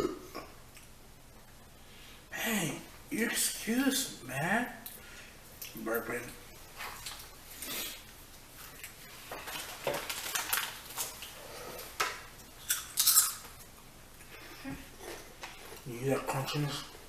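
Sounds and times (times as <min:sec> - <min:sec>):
crunchy chewing of chips: 0:06.8 - 0:13.8.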